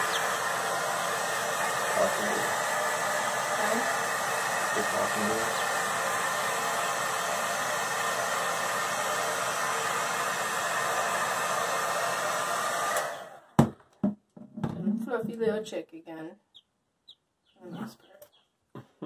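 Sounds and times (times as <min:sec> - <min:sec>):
hair dryer blowing: 0:00.0 - 0:13.6.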